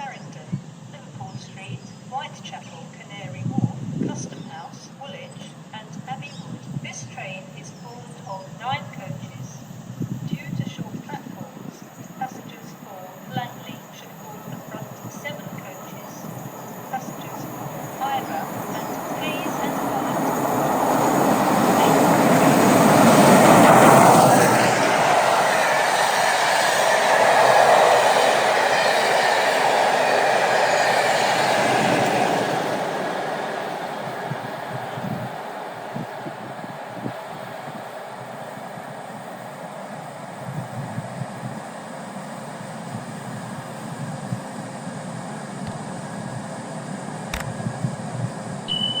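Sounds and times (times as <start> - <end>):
train coaches rolling past: 4.4 - 49.0
sharp click: 47.3 - 47.5.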